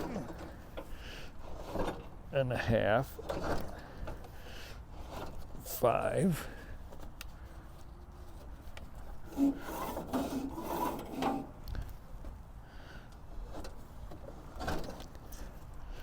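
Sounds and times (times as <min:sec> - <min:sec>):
handle scraping and rubbing: 0:03.2 - 0:05.9, 0:07.7 - 0:11.6.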